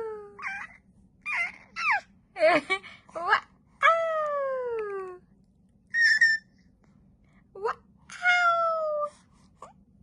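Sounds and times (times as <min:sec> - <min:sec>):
baby babbling and squealing: 0:00.4 - 0:02.1, 0:06.0 - 0:06.5.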